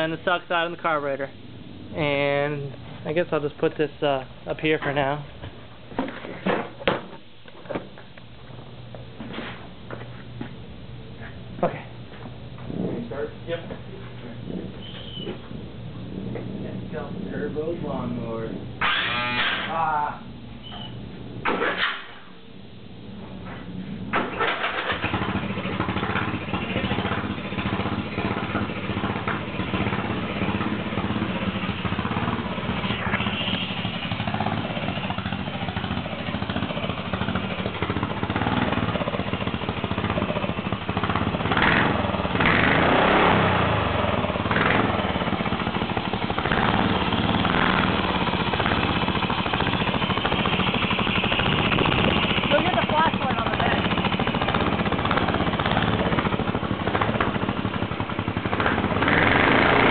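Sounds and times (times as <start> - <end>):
lawn mower engine running: 24.1 - 59.9.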